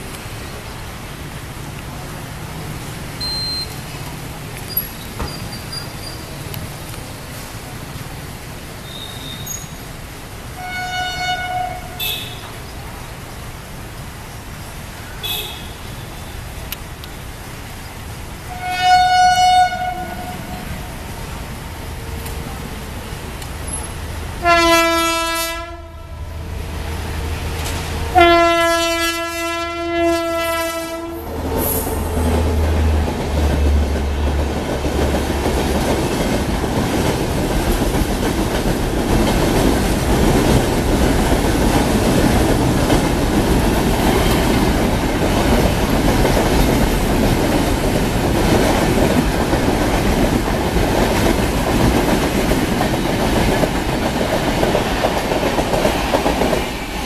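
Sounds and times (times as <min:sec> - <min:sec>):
train rumbling past on rails: 0:00.0 - 0:57.0
locomotive horn blasts: 0:10.6 - 0:12.6, 0:15.2 - 0:16.4, 0:18.5 - 0:20.4, 0:24.4 - 0:26.2, 0:28.1 - 0:31.3.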